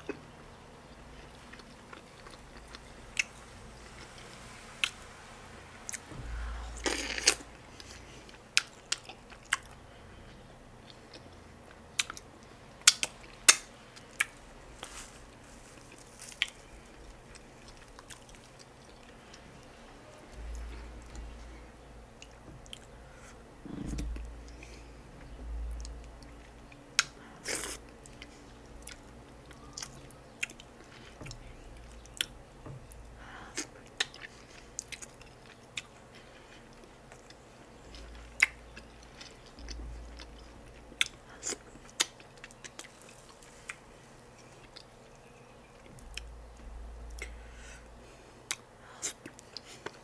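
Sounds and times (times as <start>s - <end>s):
wet chewing and mouth smacks: 6.8s - 14.4s, 24.0s - 47.4s.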